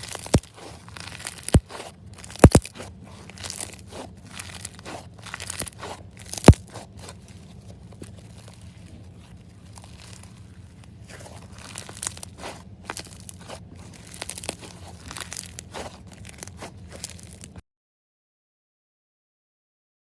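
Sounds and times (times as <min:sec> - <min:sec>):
slime squeezed by hand crackling: 0:00.0 - 0:17.6
slime sharp pops: 0:02.4 - 0:02.7.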